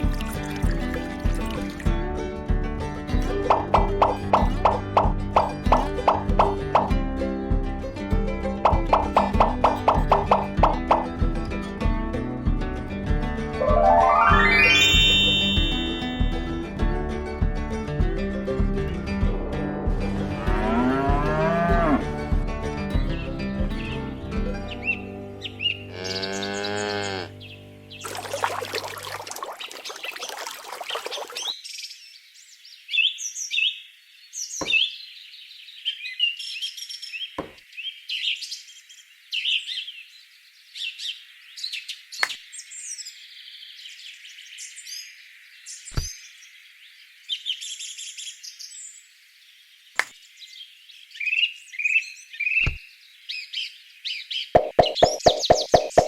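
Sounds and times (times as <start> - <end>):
birds chirping: 3.4 - 7.0, 8.6 - 11.2, 13.6 - 16.5, 23.0 - 56.0.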